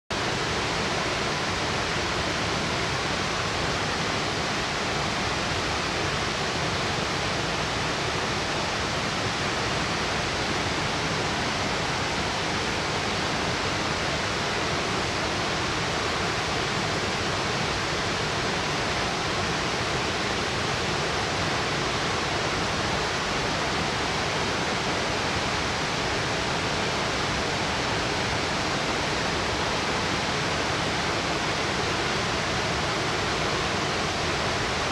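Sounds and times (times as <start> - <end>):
waterfall roaring onto rock: 0.1 - 34.9.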